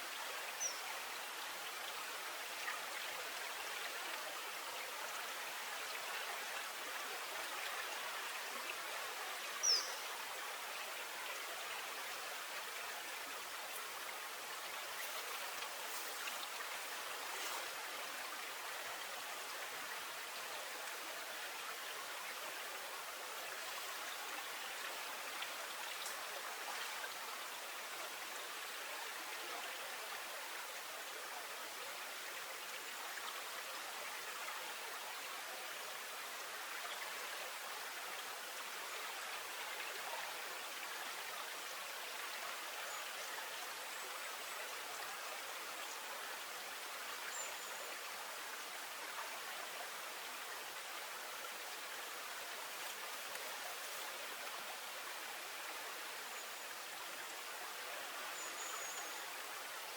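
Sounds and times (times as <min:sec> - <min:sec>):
faint ticks: 0:52.8 - 0:54.6.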